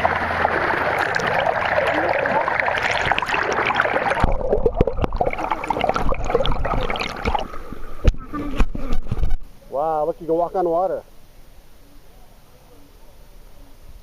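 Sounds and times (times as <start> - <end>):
floodwater rushing: 0.0 - 9.3.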